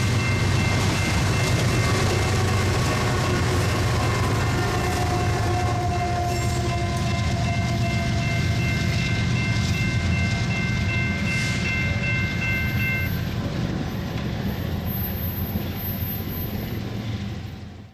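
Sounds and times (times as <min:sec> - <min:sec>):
train wheels rumbling on rails: 0:00.0 - 0:17.9
thin high ringing tones: 0:07.5 - 0:13.3.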